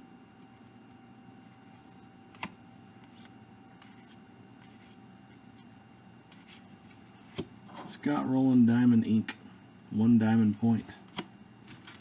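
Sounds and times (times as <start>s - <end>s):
trading cards being flipped: 1.6s - 5.0s, 6.3s - 7.5s, 11.1s - 12.0s.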